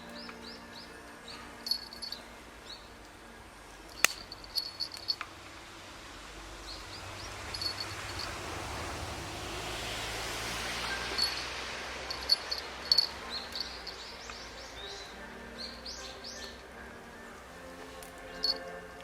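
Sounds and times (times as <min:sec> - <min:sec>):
small birds chirping: 0:00.0 - 0:05.3, 0:06.6 - 0:08.8, 0:09.9 - 0:18.8
soft hiss: 0:00.0 - 0:19.0
sharp crack: 0:03.9 - 0:05.3.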